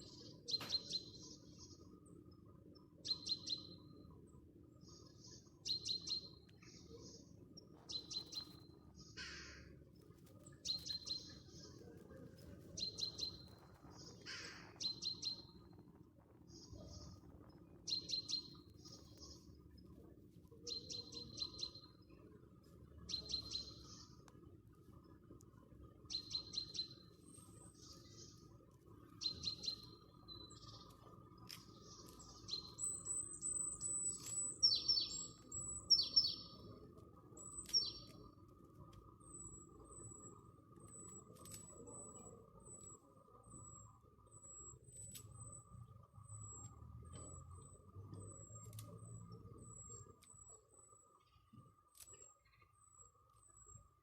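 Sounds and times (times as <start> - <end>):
small songbird singing: 0.0 - 4.1, 4.7 - 9.7, 10.5 - 15.8, 16.4 - 19.8, 20.6 - 22.2, 23.1 - 24.3, 26.0 - 38.4, 39.1 - 51.3
small bird calling: 8.0 - 9.7, 12.8 - 15.5
faint clicks: 30.7 - 32.4, 40.8 - 43.0, 46.6 - 49.2, 50.0 - 50.6, 51.2 - 53.8.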